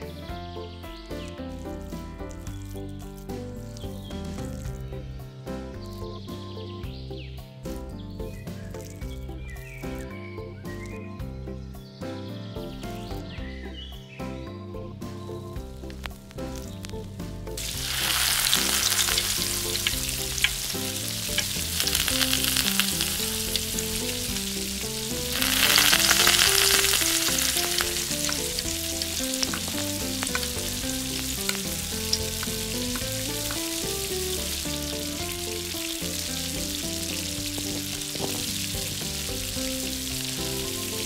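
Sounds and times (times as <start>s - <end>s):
food sizzling in hot oil: 15.8s - 41.0s.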